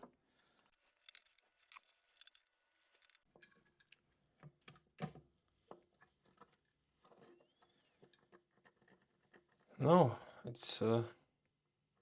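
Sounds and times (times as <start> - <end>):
small parts clicking and tapping: 0.6 - 4.1.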